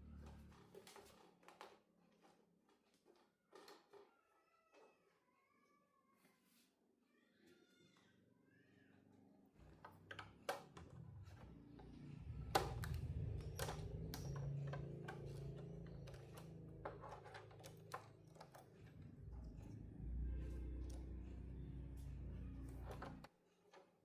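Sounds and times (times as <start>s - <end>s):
hard objects clicking and tapping: 9.6s - 24.0s.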